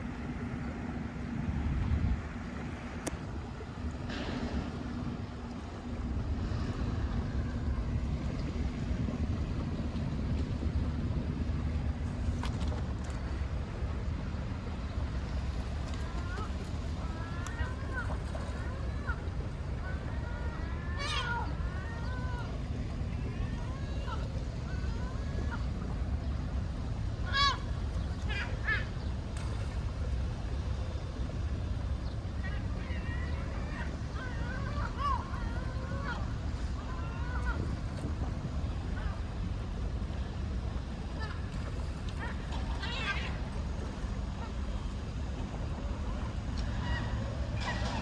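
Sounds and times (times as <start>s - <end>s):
wind buffeting microphone: 0.0s - 46.5s
boat motor running: 0.0s - 48.0s
gulls calling: 14.0s - 48.0s.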